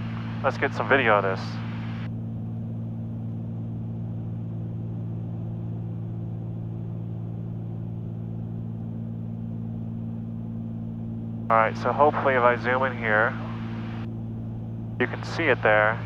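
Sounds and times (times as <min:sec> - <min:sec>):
aircraft cabin engine drone: 0:00.0 - 0:16.0.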